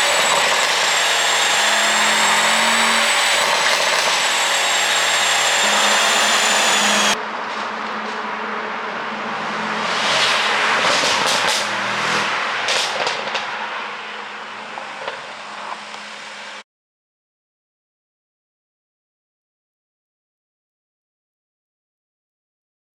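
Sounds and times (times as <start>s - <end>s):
car engine revving: 0.0s - 16.6s
exhaust pops and crackles: 12.7s - 13.5s.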